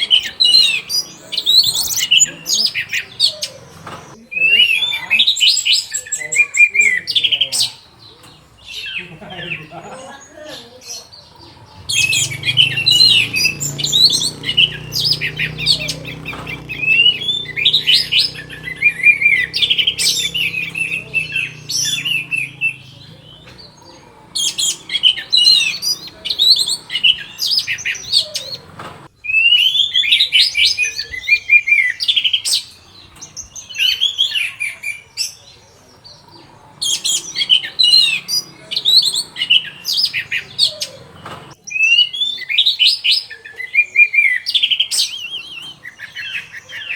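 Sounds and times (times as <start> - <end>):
thrush singing whistled phrases: 11.8 - 23.7.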